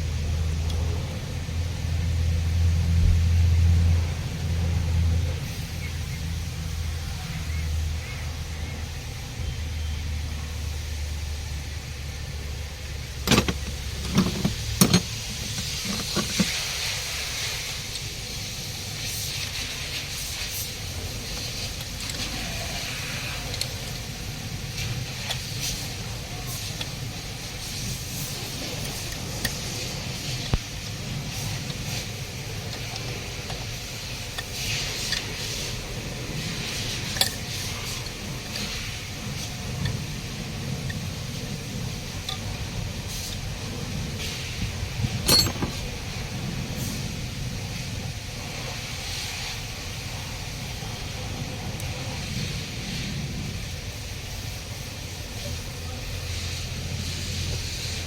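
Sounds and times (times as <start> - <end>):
steady background hiss: 0.0 - 58.0
hand tools clinking on metal: 13.3 - 16.8, 45.1 - 45.9.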